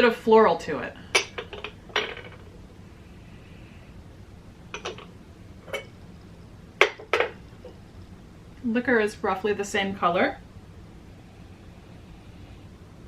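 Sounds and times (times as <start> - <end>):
porcelain teaware clinking: 1.2 - 2.4, 4.8 - 5.9.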